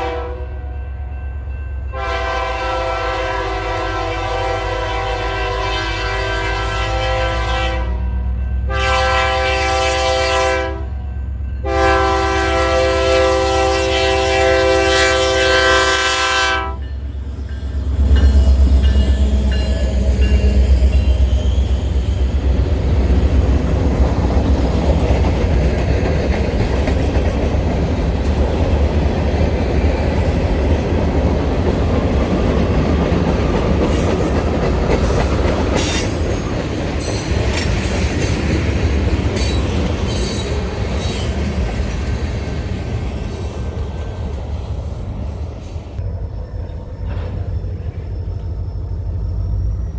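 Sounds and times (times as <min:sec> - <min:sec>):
locomotive horn blasts: 0:00.0 - 0:00.8, 0:01.9 - 0:11.0, 0:11.6 - 0:16.9
locomotive passing rumble: 0:01.4 - 0:49.9
train wheels clickety-clack: 0:16.8 - 0:46.0.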